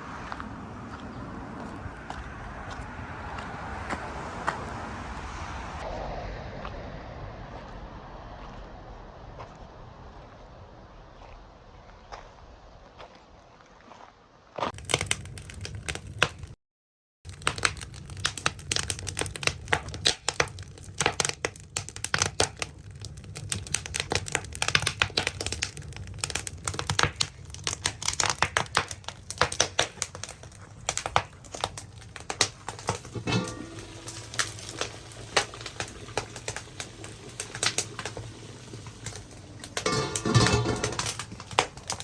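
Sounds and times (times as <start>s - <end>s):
firewood crackling and popping: 14.6s - 16.6s, 17.3s - 42.0s.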